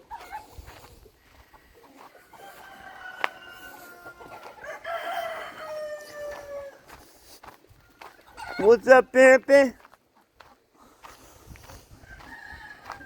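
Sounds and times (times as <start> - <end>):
rooster crowing: 2.3 - 6.9, 8.0 - 8.8, 12.0 - 13.0.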